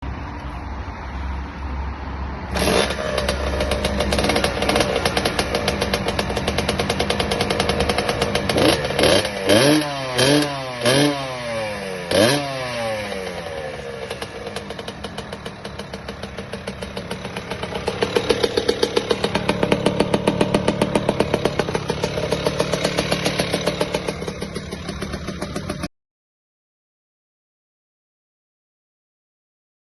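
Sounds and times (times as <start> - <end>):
dirt bike engine revving: 2.5 - 25.9.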